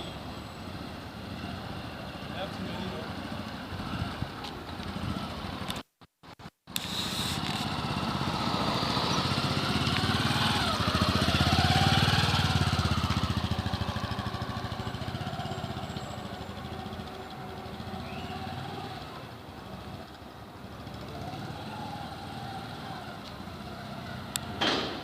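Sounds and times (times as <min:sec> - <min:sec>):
motorcycle engine running: 0:06.8 - 0:24.3.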